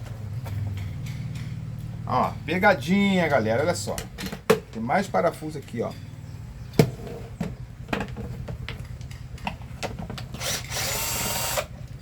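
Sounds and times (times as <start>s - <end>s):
electric screwdriver running: 10.4s - 11.7s.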